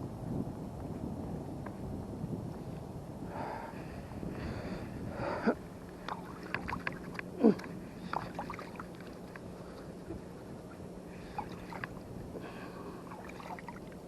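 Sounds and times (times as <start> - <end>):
wind on microphone: 0.0 - 14.0
water sloshing and splashing: 5.9 - 14.0
water gurgling plops: 6.0 - 9.2
small clicks and drips: 6.0 - 10.2, 11.3 - 12.0.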